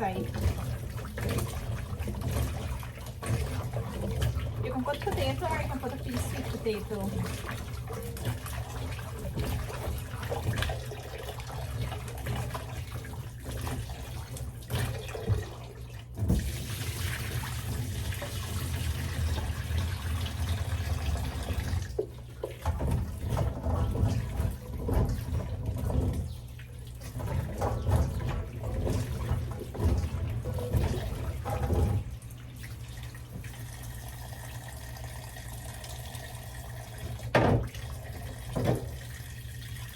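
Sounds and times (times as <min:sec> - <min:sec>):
water splashing: 0:00.0 - 0:39.9
tap running into sink: 0:37.0 - 0:39.1.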